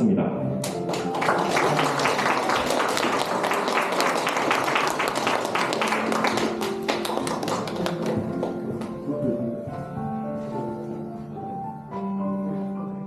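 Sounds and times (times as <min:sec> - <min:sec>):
background music: 0:00.0 - 0:13.0
crowd applauding: 0:00.6 - 0:08.9.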